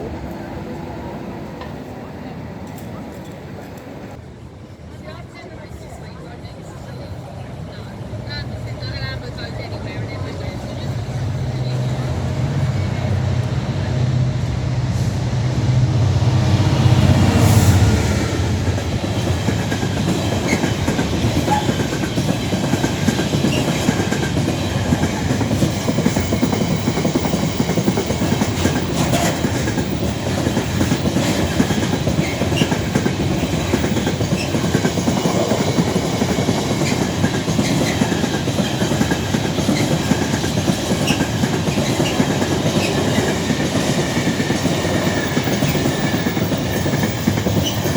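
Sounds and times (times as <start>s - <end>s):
diesel locomotive engine passing: 0.0s - 47.9s
train wheels clacking over rail joints: 16.3s - 47.9s.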